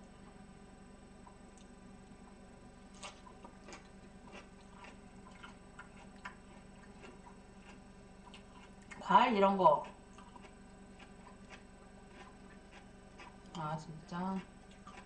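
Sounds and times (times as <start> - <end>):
faint chewing mouth clicks: 3.0 - 9.0, 9.8 - 13.6, 14.7 - 15.0.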